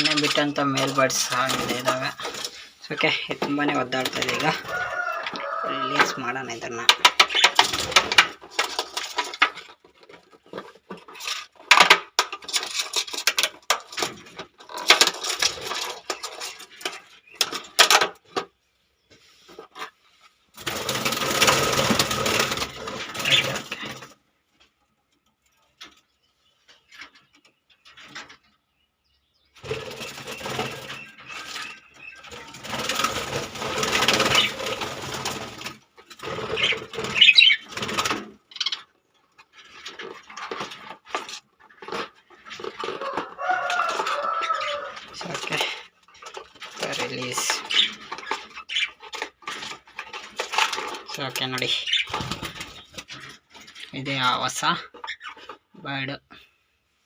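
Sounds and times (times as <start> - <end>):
noisy scraping: 29.6 - 38.4
rattling and clicking box handling: 45.1 - 51.4.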